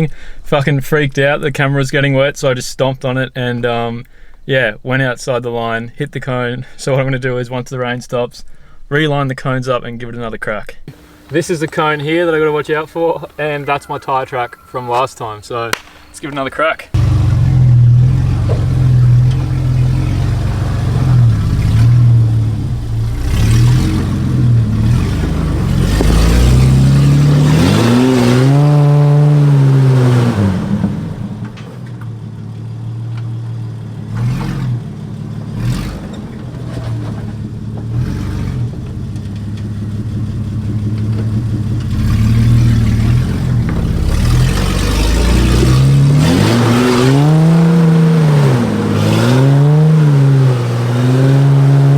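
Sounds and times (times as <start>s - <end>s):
engine revving under load: 10.9s - 32.9s, 33.6s - 51.9s.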